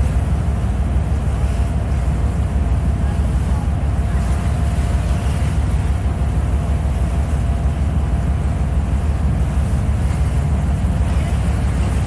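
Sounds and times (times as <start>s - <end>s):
ferry engine drone: 0.0s - 12.0s.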